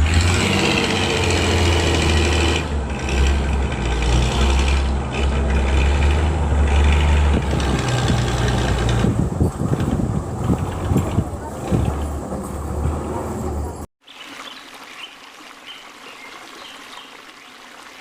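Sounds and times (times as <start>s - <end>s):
heavy vehicle engine humming: 0.0s - 13.9s.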